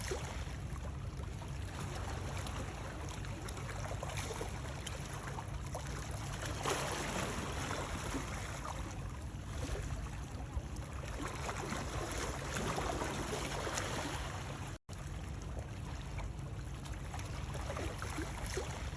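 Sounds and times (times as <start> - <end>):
water sloshing and lapping: 0.0 - 18.9.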